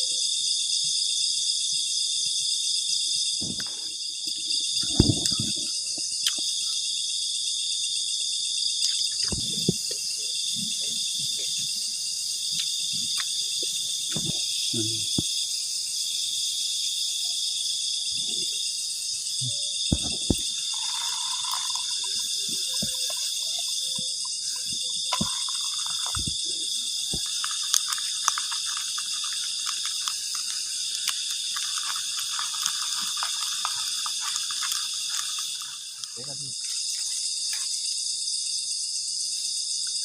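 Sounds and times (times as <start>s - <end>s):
night insects chirping: 0.0s - 40.0s
faint crackle: 19.9s - 37.7s.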